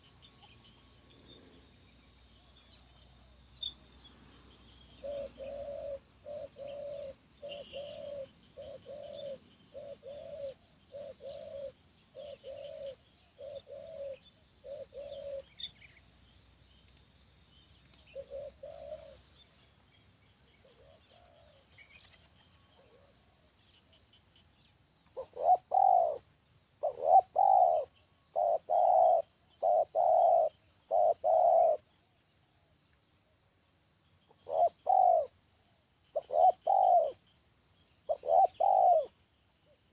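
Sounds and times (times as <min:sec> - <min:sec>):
high insect hiss: 0:00.0 - 0:39.9
dove cooing: 0:04.8 - 0:15.9, 0:18.1 - 0:19.4, 0:20.6 - 0:23.2, 0:25.2 - 0:26.2, 0:26.8 - 0:31.9, 0:34.3 - 0:35.4, 0:36.1 - 0:37.2, 0:38.1 - 0:39.2.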